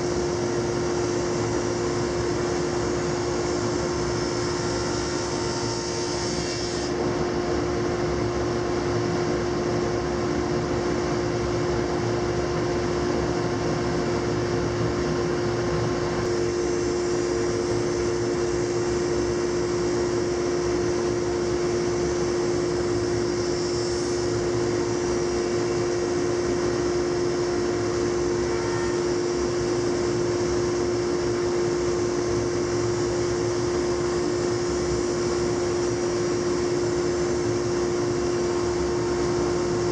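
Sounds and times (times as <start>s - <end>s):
planer humming: 16.2s - 32.7s.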